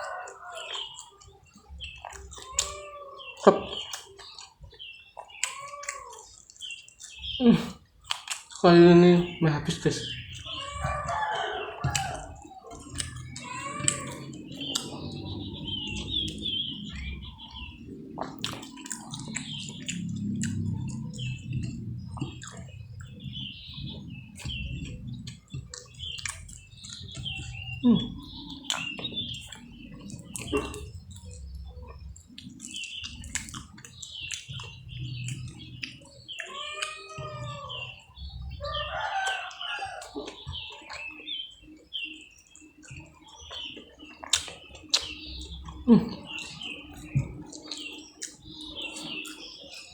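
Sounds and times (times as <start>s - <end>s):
rooster crowing: 0.0s - 0.8s, 10.4s - 16.1s, 37.2s - 40.2s
chewing food: 0.0s - 49.9s
small birds chirping: 0.0s - 49.9s.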